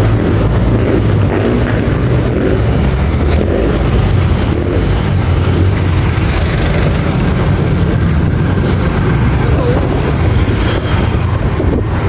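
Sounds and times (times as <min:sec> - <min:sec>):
road and traffic noise: 0:00.0 - 0:12.0
vehicle engine hum: 0:00.0 - 0:12.0.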